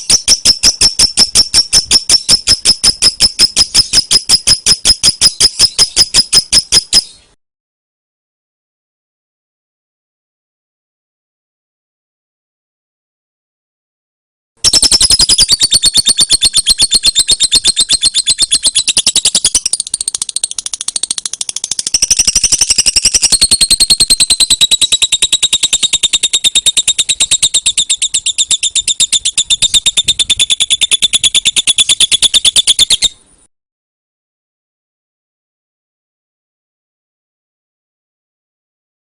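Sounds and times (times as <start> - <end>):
lovebird shrill chatter: 0.0 - 7.2, 14.6 - 33.2.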